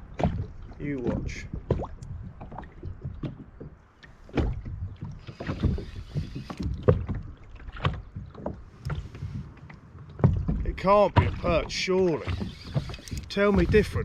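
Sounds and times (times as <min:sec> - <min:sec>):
wind rumble on microphone: 0:00.0 - 0:14.0
knocks on plastic boat: 0:10.2 - 0:11.6.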